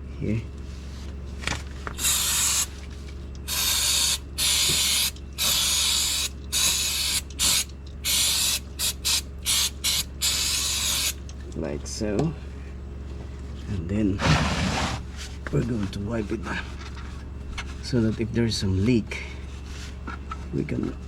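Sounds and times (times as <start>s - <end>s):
aerosol can spraying: 2.0s - 2.7s, 3.5s - 11.2s.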